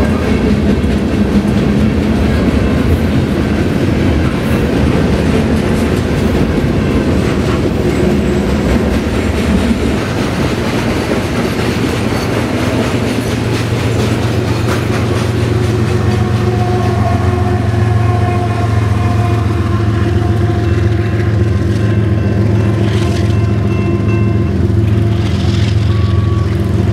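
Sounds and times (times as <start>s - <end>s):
train wheels rumbling on rail: 0.0s - 26.9s
steady tonal hum: 12.2s - 26.9s.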